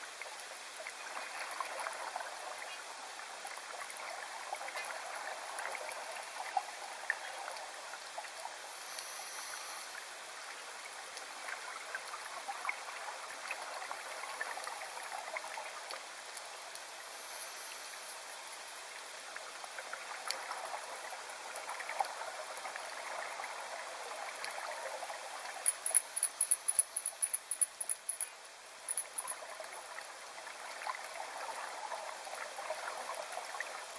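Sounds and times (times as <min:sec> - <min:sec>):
water trickling: 0:19.7 - 0:33.9.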